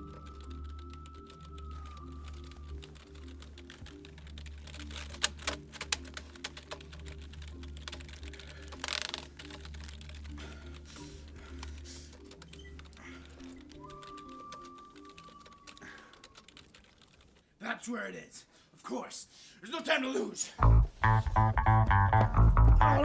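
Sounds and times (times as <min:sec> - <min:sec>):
dramatic background music: 0:00.0 - 0:15.8
fast keyboard typing: 0:00.0 - 0:17.4.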